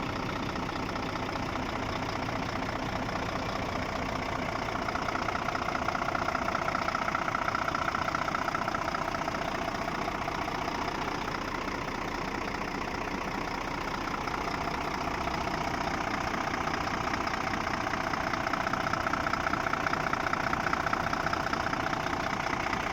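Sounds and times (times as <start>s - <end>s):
diesel truck engine idling: 0.0s - 22.9s.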